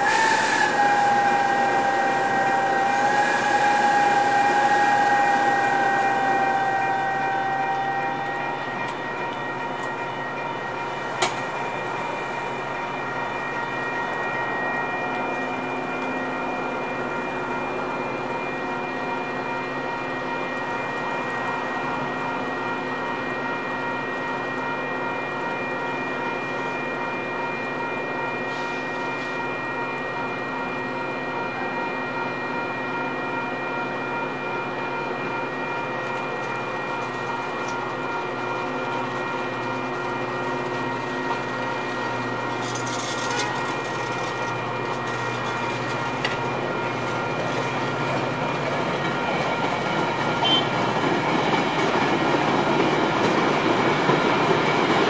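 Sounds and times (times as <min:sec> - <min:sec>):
diesel locomotive idling: 0:00.0 - 0:18.8
diesel locomotive engine humming: 0:00.0 - 0:55.0.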